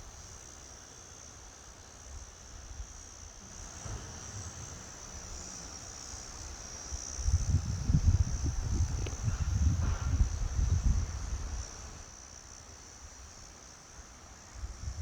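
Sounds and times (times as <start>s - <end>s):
crickets chirping: 0.0s - 15.0s
low gusty rumble: 7.3s - 11.6s.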